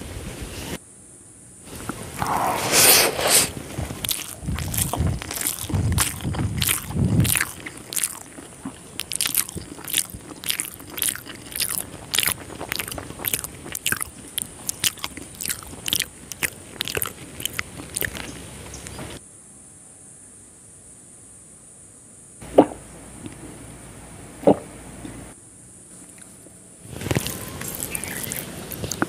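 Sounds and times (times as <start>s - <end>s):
wet chewing mouth clicks: 1.7s - 19.2s, 26.0s - 29.0s.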